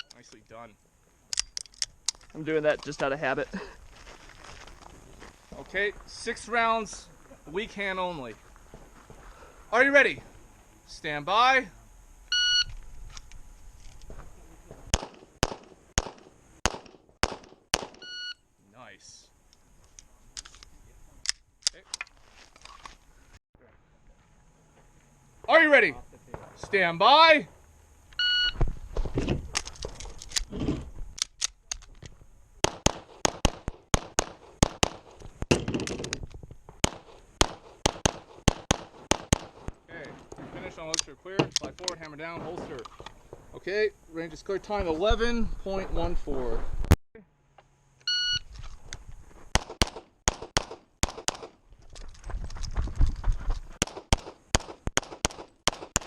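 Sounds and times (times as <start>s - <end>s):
shot timer beep: 12.3s - 12.7s, 18.0s - 18.4s, 48.1s - 48.4s
pistol shots: 14.9s - 18.0s, 32.6s - 35.7s, 36.8s - 39.7s, 49.5s - 51.6s, 53.8s - 56.0s.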